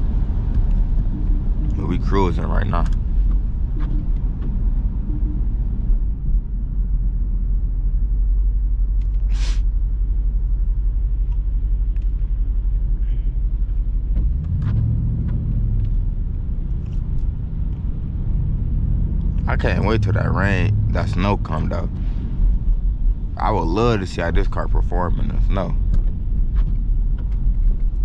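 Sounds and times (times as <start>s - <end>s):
car engine droning in cabin: 0.0s - 28.0s
tyre road noise: 0.0s - 28.0s
brief hiss: 9.3s - 9.6s.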